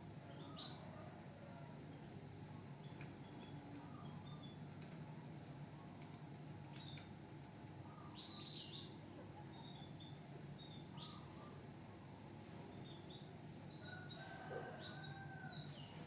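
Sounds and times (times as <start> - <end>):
canary chirping: 2.8 - 4.8, 7.9 - 11.6
soft clicks: 2.9 - 3.9, 4.7 - 7.8.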